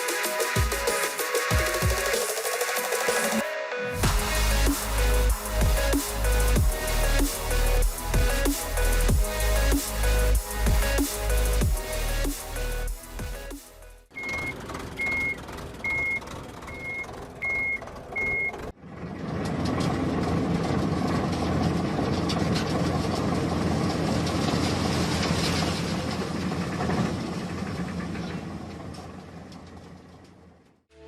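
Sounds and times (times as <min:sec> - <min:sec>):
heavy vehicle engine running: 0:04.0 - 0:31.0
reversing alarm beeps: 0:14.2 - 0:18.6.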